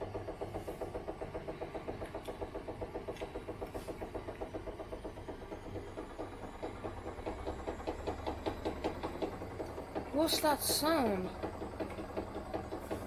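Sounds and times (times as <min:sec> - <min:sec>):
washing machine drum knocking: 0:00.0 - 0:13.0
washing machine motor hum: 0:00.0 - 0:13.0.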